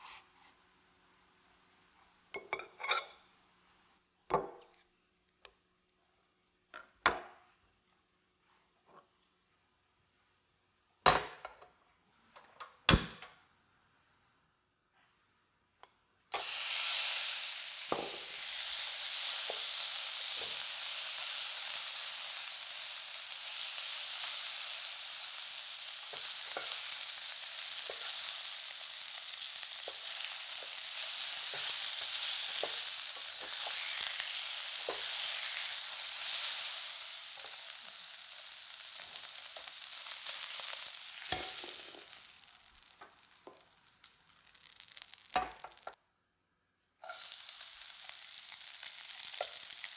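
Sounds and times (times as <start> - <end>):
bacon sizzling in a pan: 16.4 - 46.0, 47.0 - 49.9.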